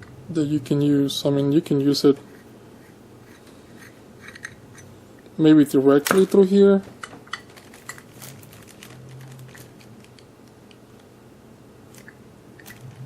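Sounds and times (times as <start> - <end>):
low steady hum: 0.0 - 13.0
small clicks and handling noises: 7.0 - 11.1.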